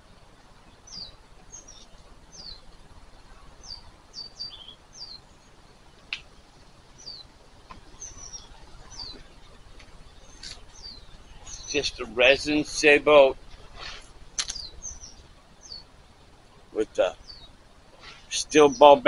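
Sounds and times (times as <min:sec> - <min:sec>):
small birds chirping: 0:00.0 - 0:19.0
sharp click: 0:14.4 - 0:14.7.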